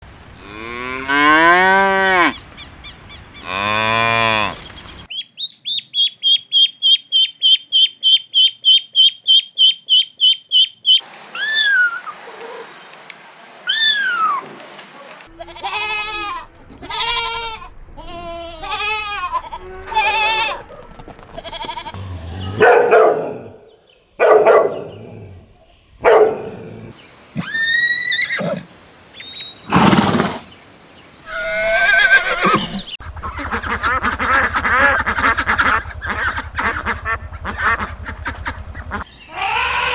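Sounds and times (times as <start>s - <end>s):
cow mooing: 0.4s - 2.4s, 3.4s - 4.6s, 21.4s - 23.5s
fast high chirps: 5.1s - 12.0s
varied animal calls: 6.0s - 12.8s, 26.0s - 28.8s, 31.3s - 39.9s.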